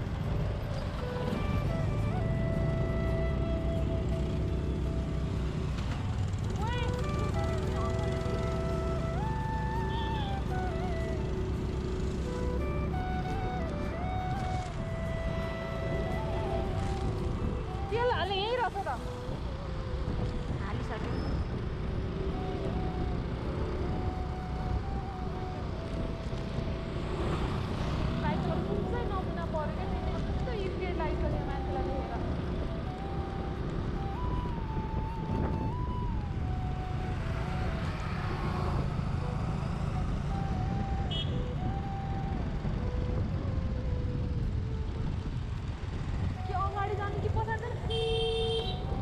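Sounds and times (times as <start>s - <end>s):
motor scooter engine drone: 0.0s - 18.0s, 19.0s - 49.0s
wind rumble on microphone: 29.9s - 37.9s, 38.6s - 47.9s.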